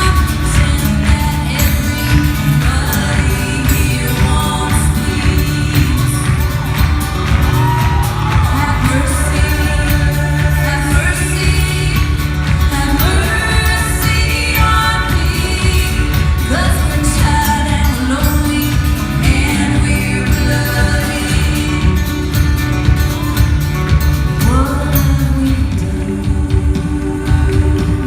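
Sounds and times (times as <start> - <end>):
live band with singing: 0.0 - 28.0.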